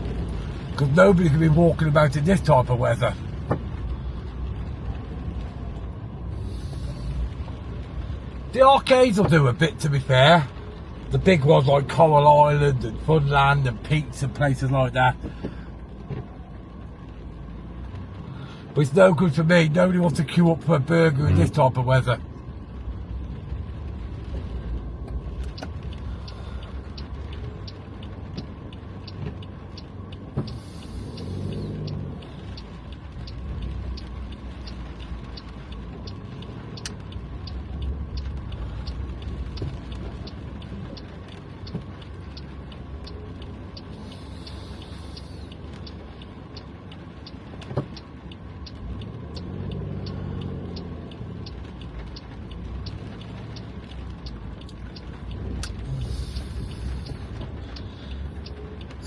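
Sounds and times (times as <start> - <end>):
car engine and road rumble: 0.0 - 59.0
quick regular ticking: 22.2 - 59.0.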